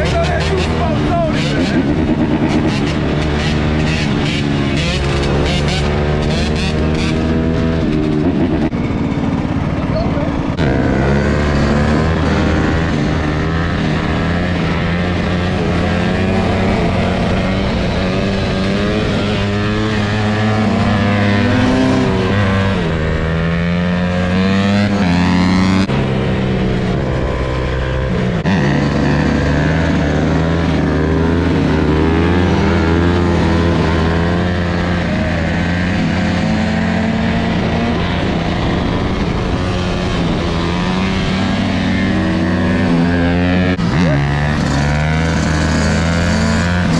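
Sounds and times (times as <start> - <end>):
motorcycle engines revving: 0.0 - 46.9.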